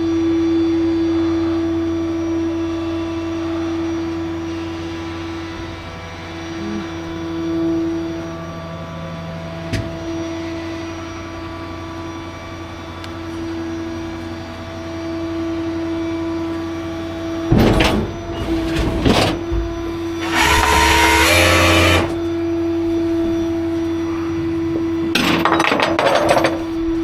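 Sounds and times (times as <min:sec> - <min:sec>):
tow truck engine humming: 0:16.2 - 0:23.9.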